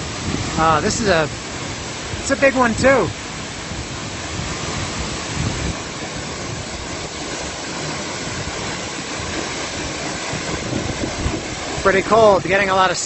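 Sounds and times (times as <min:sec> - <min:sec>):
waterfall rushing: 0:00.0 - 0:13.0
wind buffeting microphone: 0:00.0 - 0:13.0.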